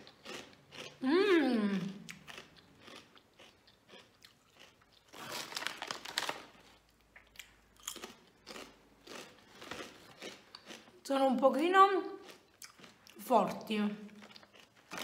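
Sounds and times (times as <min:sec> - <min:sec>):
crunching snack chip: 0:02.1 - 0:06.9, 0:07.8 - 0:10.9, 0:14.2 - 0:15.0.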